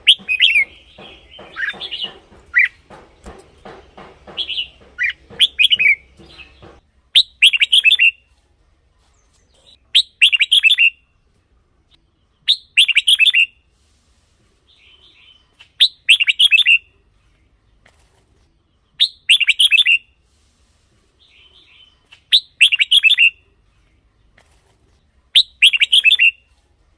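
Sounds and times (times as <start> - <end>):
bird singing warbled phrases: 0.0 - 8.2, 9.1 - 11.1, 12.0 - 13.6, 14.7 - 17.8, 18.6 - 20.1, 21.2 - 24.3, 25.2 - 26.5
quiet bird twitter: 0.0 - 26.7.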